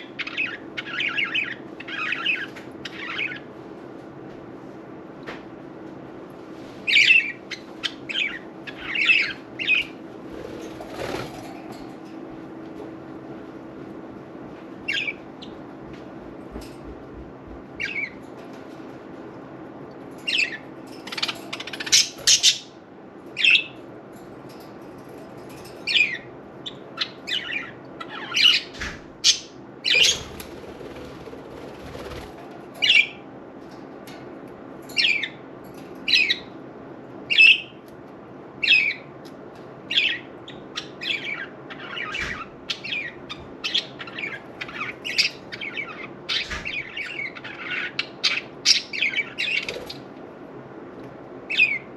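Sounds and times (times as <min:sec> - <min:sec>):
steady low hum: 0:00.0 - 0:51.9
budgerigars chirping: 0:06.9 - 0:10.0, 0:39.9 - 0:50.0.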